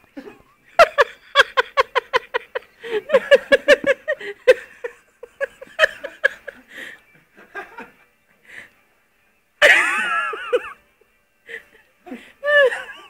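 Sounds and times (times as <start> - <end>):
person laughing hard: 0.2 - 6.7, 9.6 - 10.8, 11.6 - 13.0.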